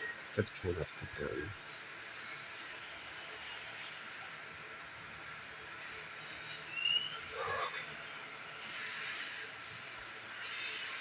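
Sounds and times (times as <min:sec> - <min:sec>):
background hiss: 0:00.0 - 0:11.0
faint thin whistle: 0:06.7 - 0:07.3.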